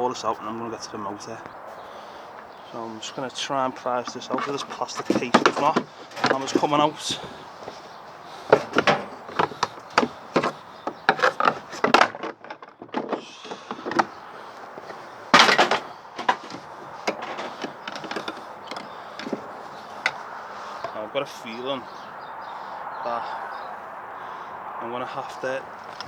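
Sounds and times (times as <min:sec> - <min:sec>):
plastic and metal parts knocking: 0:03.2 - 0:21.0, 0:25.7 - 0:26.0.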